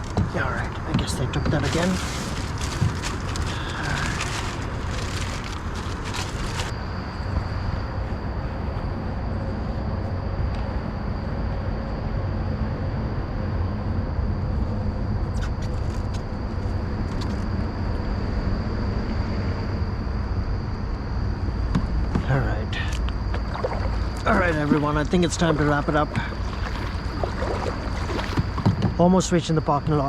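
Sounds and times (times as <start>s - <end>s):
faint high whine: 0.0s - 30.0s
river water rushing: 23.6s - 28.7s.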